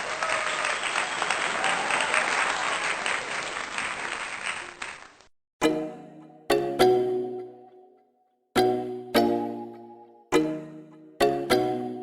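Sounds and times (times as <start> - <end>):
crowd applause: 0.0 - 5.3.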